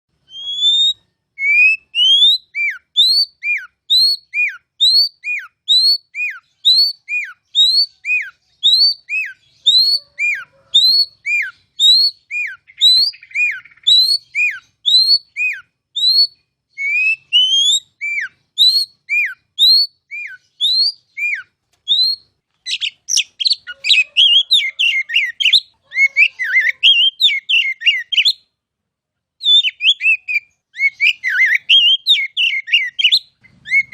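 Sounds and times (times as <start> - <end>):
bird singing whistles: 0.2 - 28.5, 29.4 - 33.9
bird twittering notes: 29.5 - 33.9.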